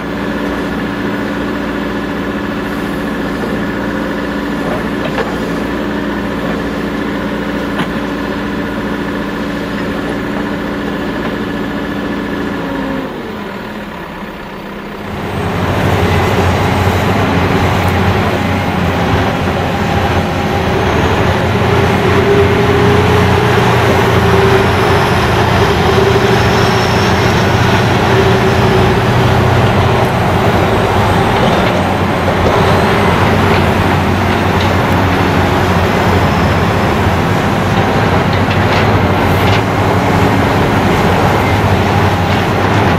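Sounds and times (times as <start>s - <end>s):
diesel engine idling and revving: 0.0s - 42.9s
wavering whine: 15.2s - 42.9s.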